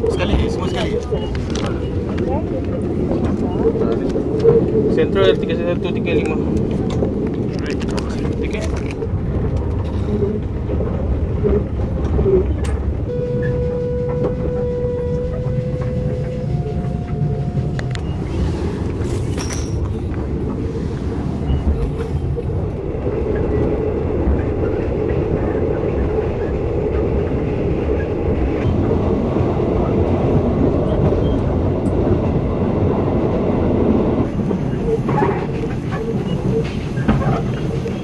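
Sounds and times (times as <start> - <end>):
train wheels rumbling on track: 0.0 - 38.0
high whine: 13.1 - 19.9.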